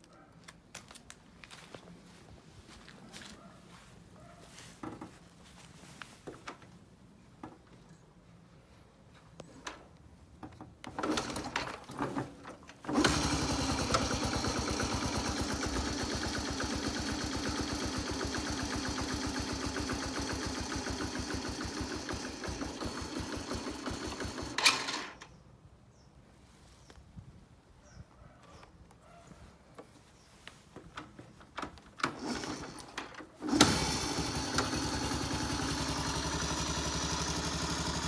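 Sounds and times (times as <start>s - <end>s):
motorcycle engine kick start: 10.9s - 25.3s, 32.0s - 38.0s
small engine idling: 12.9s - 25.2s, 32.1s - 38.0s.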